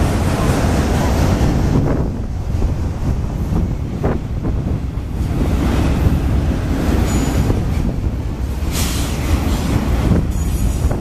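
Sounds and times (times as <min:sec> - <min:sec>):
freight train wheels rumbling: 0:00.0 - 0:11.0
rush of hiss: 0:08.7 - 0:09.8.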